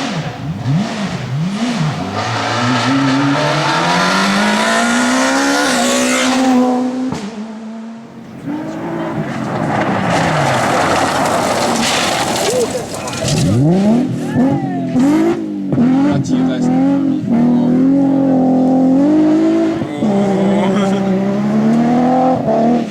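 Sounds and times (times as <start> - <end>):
rally car engine revving: 0.0 - 22.9
car passing by: 8.2 - 14.2.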